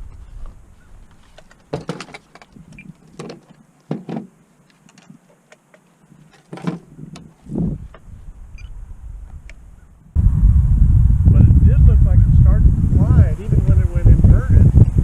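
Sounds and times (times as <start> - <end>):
low rumble: 7.0 - 15.0.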